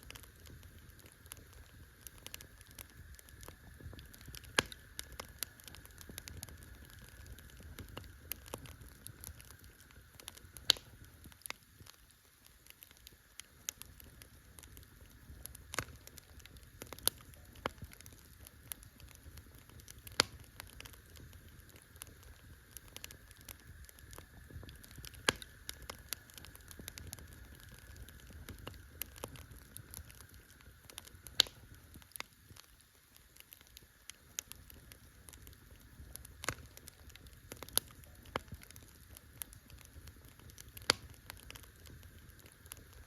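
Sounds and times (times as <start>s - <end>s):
campfire crackling and popping: 0.0s - 43.0s.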